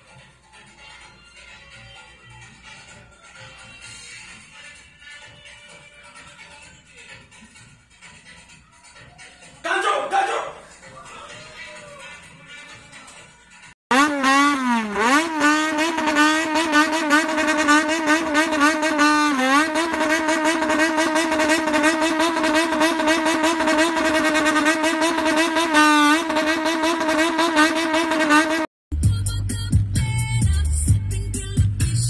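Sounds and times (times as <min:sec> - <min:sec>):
car engine revving hard: 0:13.9 - 0:28.7.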